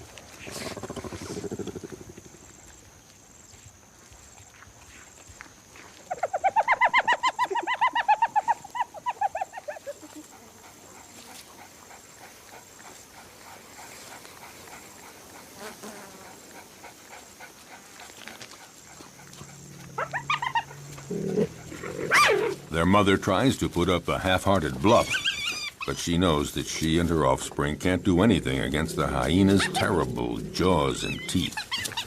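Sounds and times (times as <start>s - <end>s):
wild animal yelping calls: 6.1s - 17.8s, 18.8s - 22.8s, 24.8s - 26.0s, 28.2s - 32.0s.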